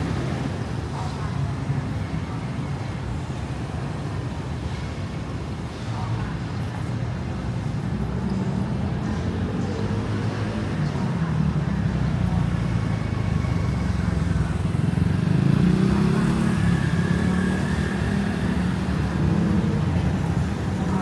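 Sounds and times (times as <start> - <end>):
car and motorcycle engines: 8.0 - 21.0
vehicle passing: 12.0 - 21.0.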